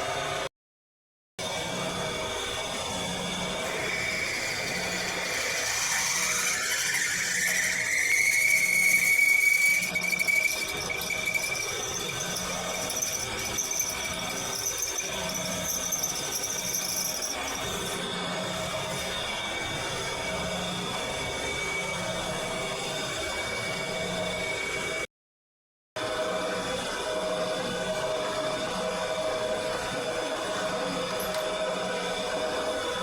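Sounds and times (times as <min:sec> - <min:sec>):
high-pitched mechanical whine: 0:01.5 - 0:25.0.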